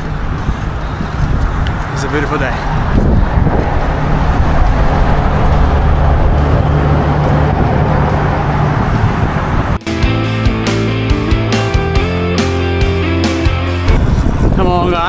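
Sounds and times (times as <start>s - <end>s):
road traffic: 0.0s - 14.6s
low engine hum: 2.7s - 14.6s
guitar rock music: 9.8s - 14.4s.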